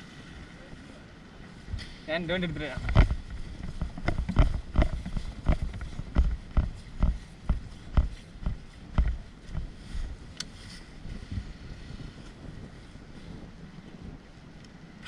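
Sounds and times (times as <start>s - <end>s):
heavy footsteps: 2.8s - 10.2s.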